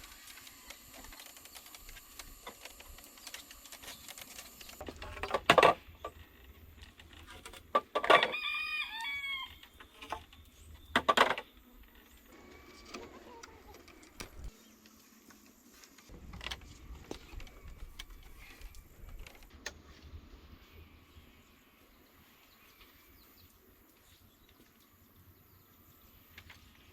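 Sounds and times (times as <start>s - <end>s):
rooster crowing: 8.1s - 9.6s.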